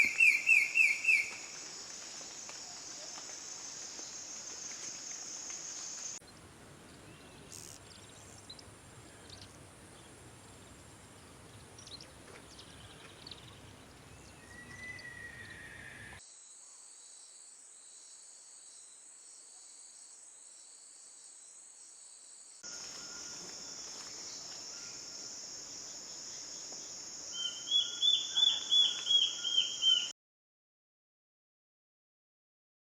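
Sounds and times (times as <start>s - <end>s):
falling bird whistle: 0.0s - 1.3s, 14.4s - 16.2s
high-pitched insect chorus: 0.0s - 6.2s, 22.6s - 30.1s.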